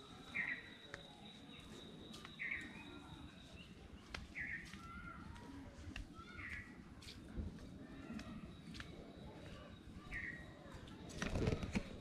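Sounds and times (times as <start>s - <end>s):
bird call: 0.3s - 1.7s
faint footsteps: 0.8s - 12.0s.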